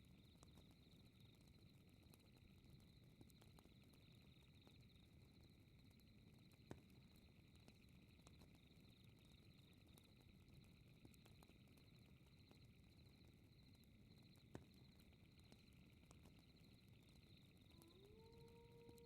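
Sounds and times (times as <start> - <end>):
night insects chirping: 11.3 - 19.0.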